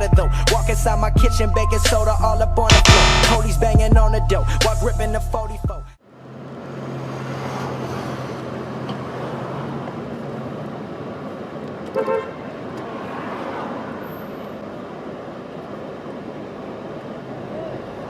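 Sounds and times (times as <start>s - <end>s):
street traffic: 3.3s - 18.0s
car horn tooting: 11.9s - 12.4s.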